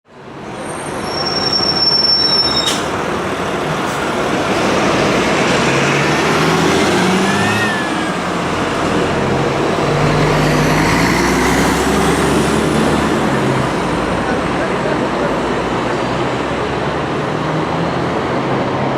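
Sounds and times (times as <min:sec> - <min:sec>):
bus diesel engine running: 0:00.1 - 0:18.9
high squeal: 0:00.5 - 0:03.0.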